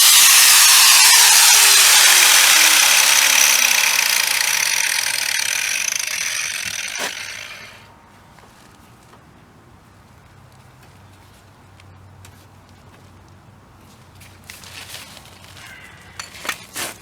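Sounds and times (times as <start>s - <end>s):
power grinder grinding steel: 0.0s - 7.8s.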